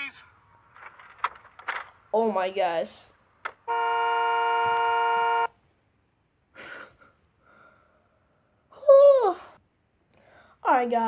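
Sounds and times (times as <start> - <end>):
car horn blast: 3.6 - 5.6.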